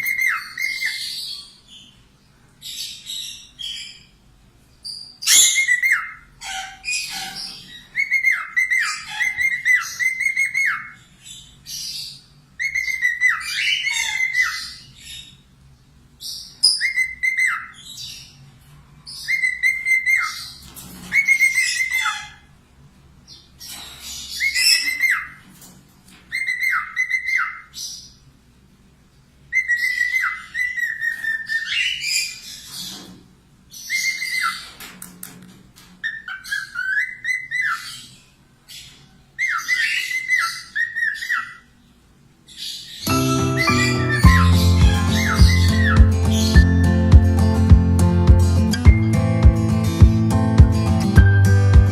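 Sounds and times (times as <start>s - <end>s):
parakeet chattering song: 0.0s - 1.6s, 4.9s - 15.4s, 16.3s - 18.4s, 19.1s - 22.5s, 23.7s - 25.4s, 26.3s - 28.2s, 29.5s - 32.7s, 33.8s - 34.7s, 36.0s - 38.2s, 38.8s - 41.7s, 42.5s - 47.7s.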